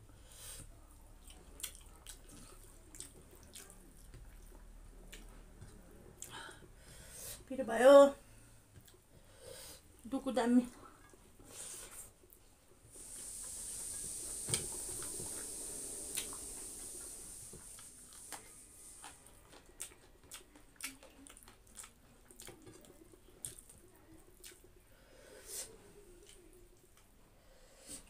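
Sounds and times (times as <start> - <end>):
wet chewing: 1.2 - 6.5, 11.0 - 24.8
steady hiss: 12.8 - 19.4
lip smacks: 16.0 - 23.8.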